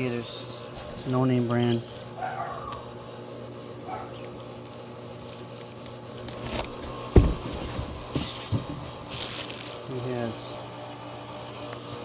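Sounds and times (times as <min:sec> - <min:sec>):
loud dull knock: 0:07.2 - 0:07.6.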